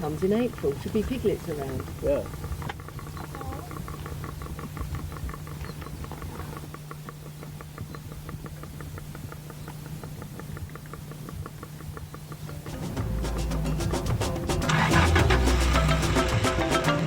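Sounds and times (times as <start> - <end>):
warthog grunting: 0.0 - 6.7
steady low hum: 0.0 - 17.0.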